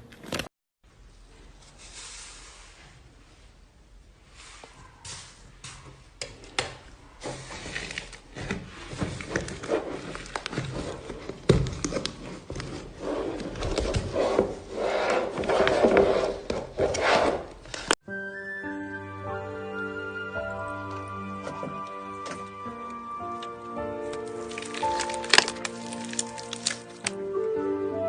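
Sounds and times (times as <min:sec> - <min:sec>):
music: 0:18.0 - 0:28.0
slime squelching by hand: 0:20.9 - 0:27.2.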